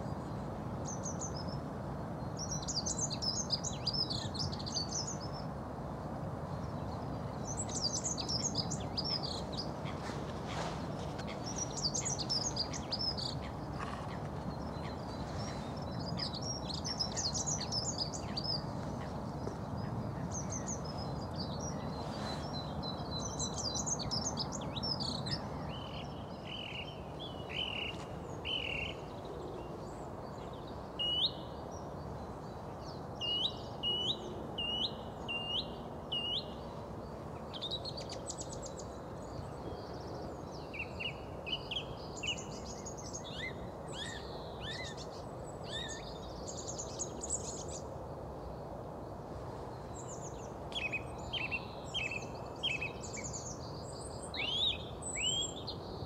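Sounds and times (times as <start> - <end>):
low background noise: 0.0 - 56.0
birds singing and calling: 6.6 - 36.8, 49.9 - 55.9.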